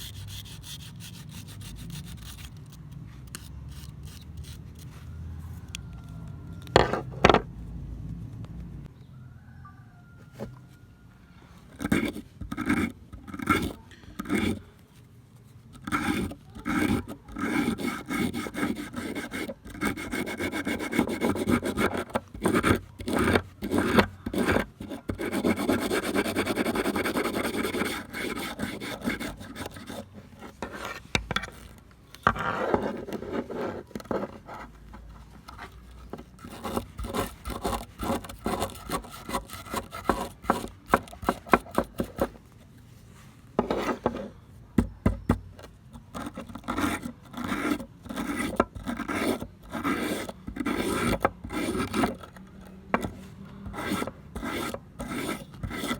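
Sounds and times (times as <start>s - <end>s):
filing strokes on rusty pliers: 0.0s - 4.9s.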